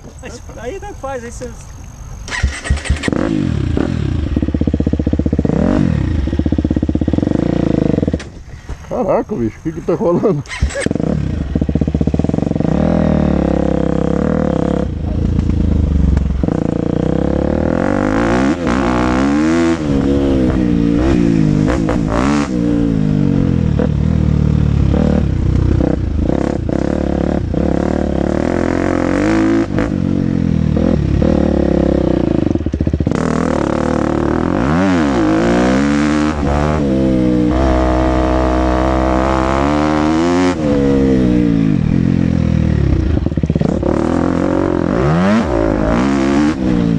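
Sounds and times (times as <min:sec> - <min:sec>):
motocross engine revving: 0:02.3 - 0:08.3, 0:09.0 - 0:46.9
knocks and clatter from bike: 0:15.2 - 0:16.4.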